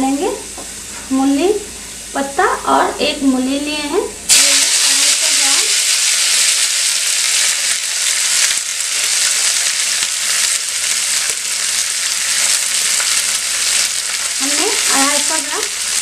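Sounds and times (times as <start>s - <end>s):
greens sizzling in hot oil: 4.3s - 16.0s.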